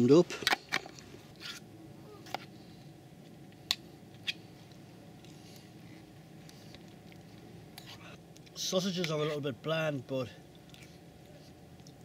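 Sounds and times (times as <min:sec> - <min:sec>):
person chewing: 0:10.4 - 0:12.0.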